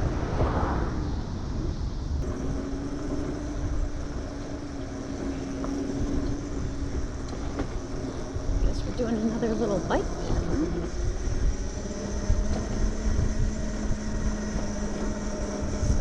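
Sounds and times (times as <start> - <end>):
electric moped road noise: 0.0 - 16.0
steady low whine: 0.0 - 16.0
wind rumbling on microphone: 0.0 - 16.0.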